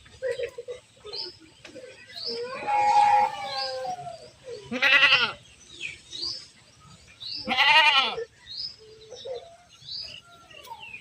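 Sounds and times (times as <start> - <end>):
goats bleating: 4.7 - 5.4, 7.4 - 8.3.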